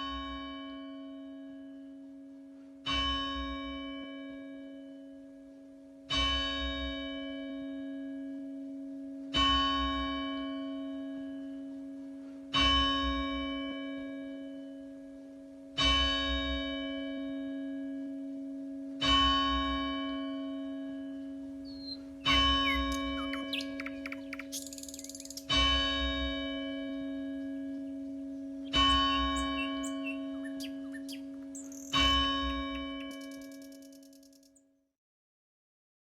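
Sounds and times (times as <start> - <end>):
church bell tolling: 6.1 - 8.0, 18.7 - 23.5, 25.5 - 30.9.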